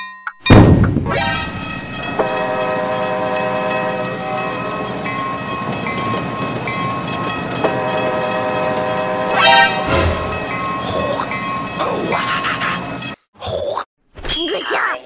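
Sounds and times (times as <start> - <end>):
train running: 0.5 - 13.2
train horn chord: 1.9 - 5.1, 7.6 - 10.5.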